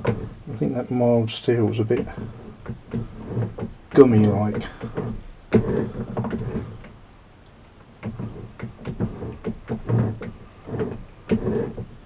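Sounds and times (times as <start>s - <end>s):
lathe carriage moving: 0.0s - 7.0s, 7.9s - 12.0s
broaching tool scraping metal: 1.4s - 6.9s, 8.0s - 12.0s.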